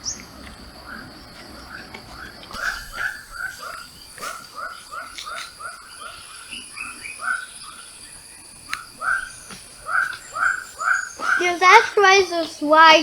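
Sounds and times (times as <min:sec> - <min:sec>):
rapid short animal calls: 0:02.1 - 0:07.6, 0:08.8 - 0:11.9.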